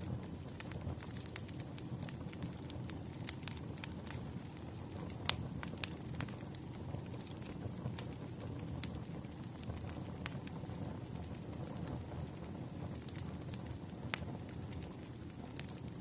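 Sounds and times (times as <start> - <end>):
fire rumbling: 0.0 - 16.0
firewood popping: 0.1 - 16.0.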